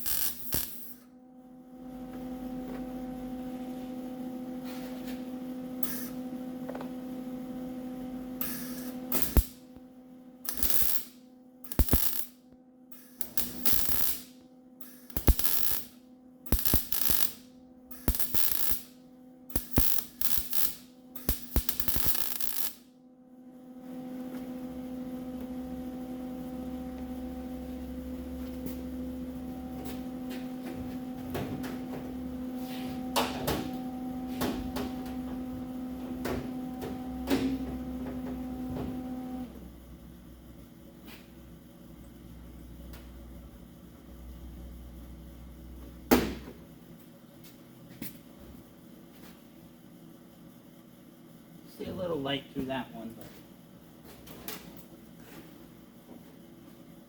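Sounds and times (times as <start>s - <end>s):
welder short bursts: 0.0s - 1.0s, 10.5s - 11.1s, 11.7s - 12.3s, 12.9s - 15.9s, 16.5s - 18.9s
steady hum with ticks: 0.0s - 3.6s, 5.0s - 57.0s.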